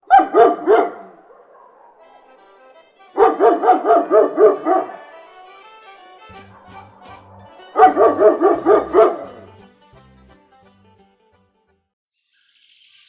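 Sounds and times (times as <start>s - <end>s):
dog barking: 0.0s - 2.5s, 3.1s - 5.4s, 6.3s - 9.5s
background music: 1.8s - 11.9s.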